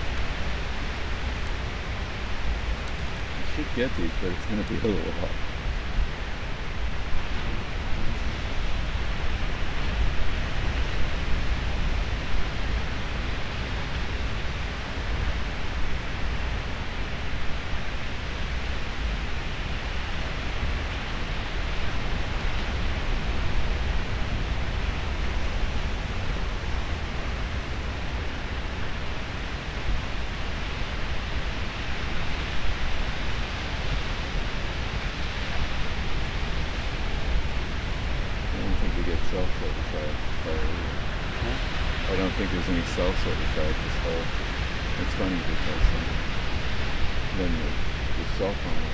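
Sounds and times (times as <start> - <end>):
ocean surf washing: 0.0 - 48.9
wind: 0.0 - 48.9.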